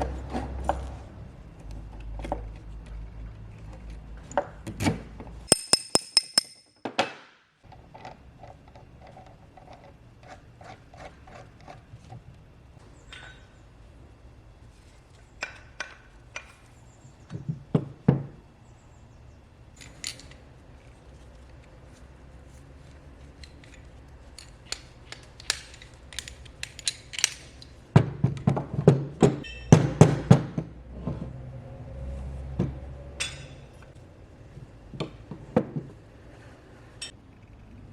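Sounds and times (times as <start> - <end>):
metal parts clinking: 5.5 - 6.8, 19.8 - 20.4, 23.2 - 27.7.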